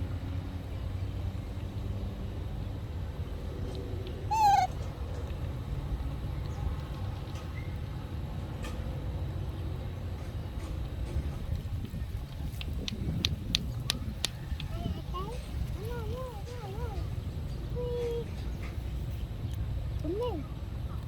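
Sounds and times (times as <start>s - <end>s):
low background rumble: 0.0s - 21.0s
young monkey calling: 4.3s - 5.0s.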